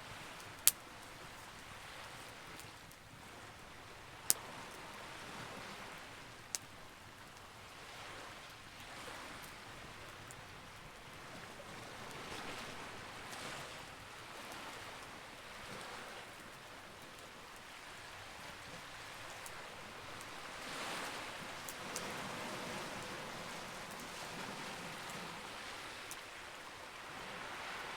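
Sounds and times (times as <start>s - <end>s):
fire crackling pops: 0.2s - 3.1s, 6.4s - 6.8s, 19.4s - 24.1s
campfire hissing: 17.9s - 26.2s.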